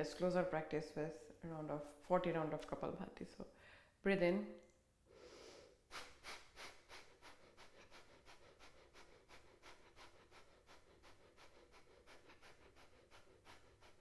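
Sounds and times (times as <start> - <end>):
forceful nasal exhalations: 5.1 - 14.0.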